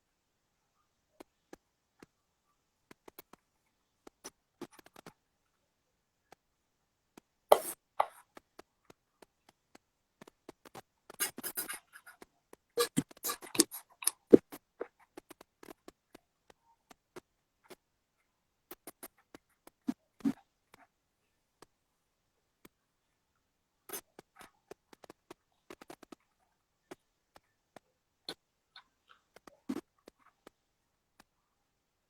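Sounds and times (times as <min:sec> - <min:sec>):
small clicks and taps: 0:02.8 - 0:05.2, 0:07.1 - 0:17.8, 0:23.9 - 0:30.6.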